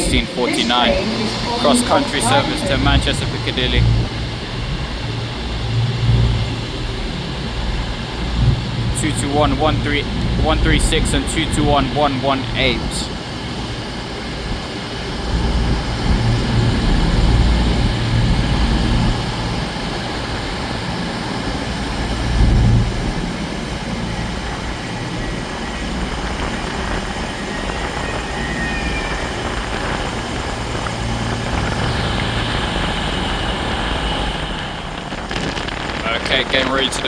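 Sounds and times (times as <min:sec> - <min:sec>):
train diesel engines rumbling: 0:00.0 - 0:37.0
faint high squeal: 0:24.2 - 0:31.3.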